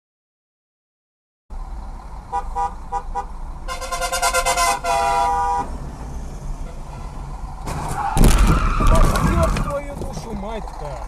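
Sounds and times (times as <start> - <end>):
low road rumble: 1.5 - 11.0
car horn toots and blast: 2.3 - 5.8, 6.6 - 7.2.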